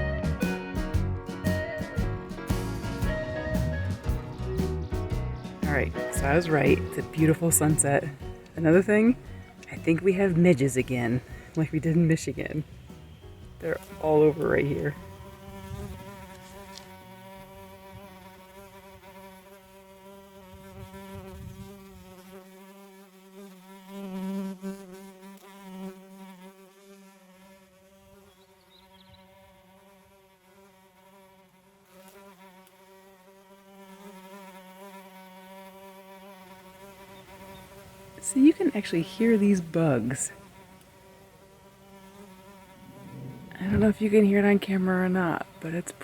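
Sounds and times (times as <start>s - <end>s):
midges humming: 0.0s - 17.5s, 42.6s - 46.0s.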